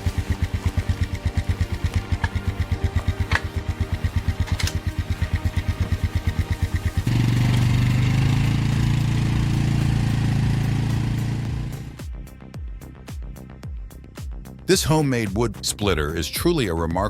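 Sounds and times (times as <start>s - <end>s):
small engine chugging and revving: 0.0s - 12.0s.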